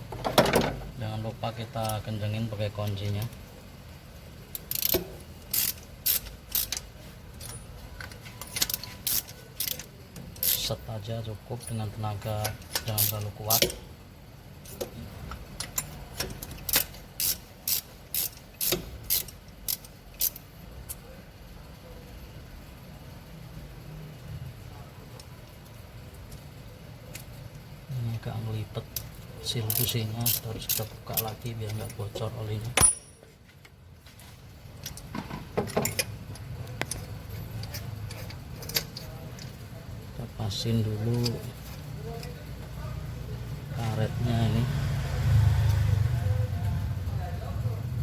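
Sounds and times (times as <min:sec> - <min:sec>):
socket wrench ratchet clicks: 0:04.5 - 0:07.6, 0:08.4 - 0:10.7, 0:12.4 - 0:13.8, 0:15.6 - 0:21.0, 0:28.9 - 0:32.0
metal tools clinking: 0:04.6 - 0:10.7, 0:28.9 - 0:39.6.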